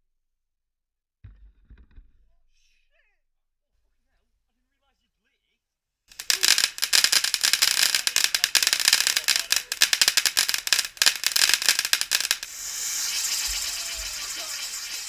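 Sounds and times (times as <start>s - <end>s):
firework crackling: 6.1s - 15.0s
firework hissing: 6.1s - 15.0s.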